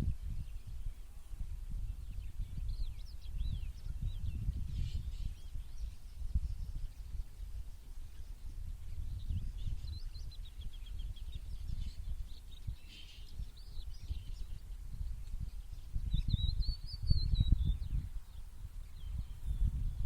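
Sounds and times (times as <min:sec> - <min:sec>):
low gusting rumble: 0:00.0 - 0:20.0
songbirds chirping and twittering: 0:00.0 - 0:20.0.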